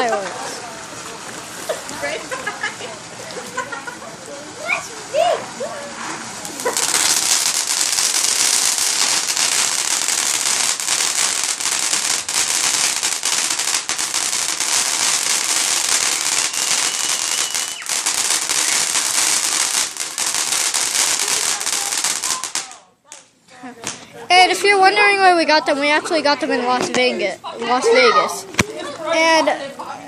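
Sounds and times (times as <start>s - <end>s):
steady hiss: 0.0s - 23.3s
fireworks crackling: 0.0s - 29.2s.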